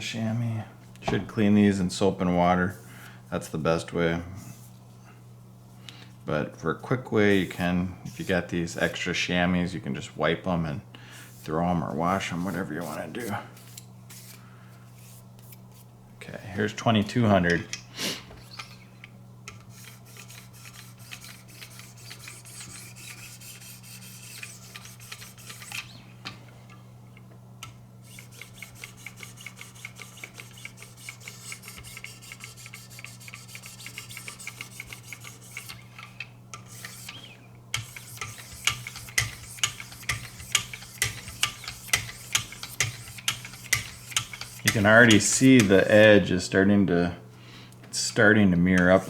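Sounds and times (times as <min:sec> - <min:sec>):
steady low hum: 0:00.0 - 0:49.0
sharpening stone scraping knife edge: 0:36.6 - 0:45.7.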